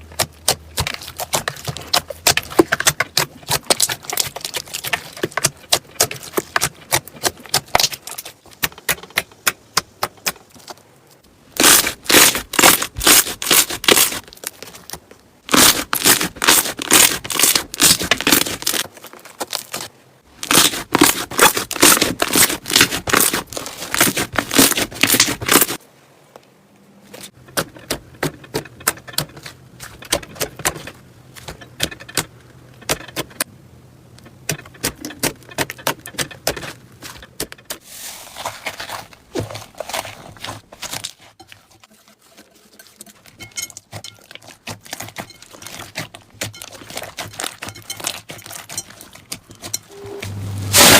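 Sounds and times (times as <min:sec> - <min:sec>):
slime squeezed crackling and popping: 0:11.6 - 0:19.8, 0:20.4 - 0:25.8.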